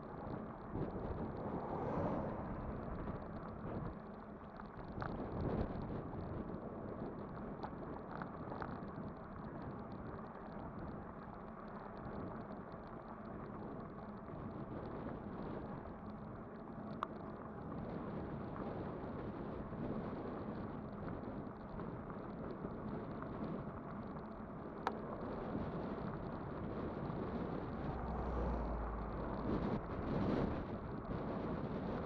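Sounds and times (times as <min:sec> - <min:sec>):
wind on microphone: 0:00.0 - 0:10.1, 0:17.6 - 0:32.0
faint steady hum: 0:00.0 - 0:32.0.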